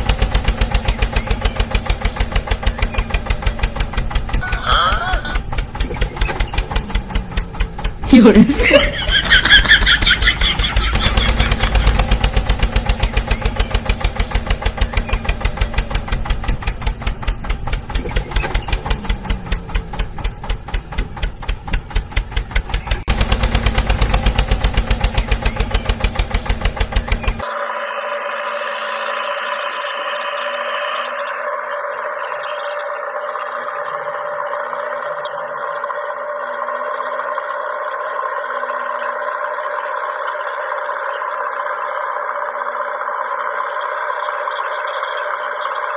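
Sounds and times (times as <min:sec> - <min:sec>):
tractor engine chugging: 0:00.0 - 0:27.6, 0:29.5 - 0:45.9
smooth steady drone: 0:27.4 - 0:45.9.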